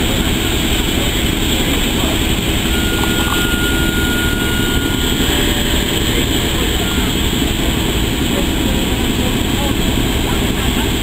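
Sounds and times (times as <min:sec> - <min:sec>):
train coaches rumbling: 0:00.0 - 0:11.0
thin high squeal: 0:02.8 - 0:06.5.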